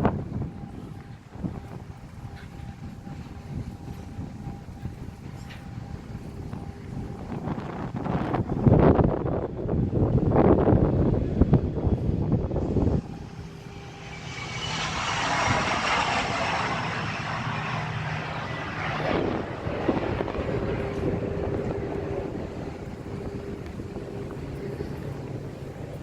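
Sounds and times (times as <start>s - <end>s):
wind buffeting microphone: 0.0s - 26.0s
aircraft flying past: 10.7s - 26.0s.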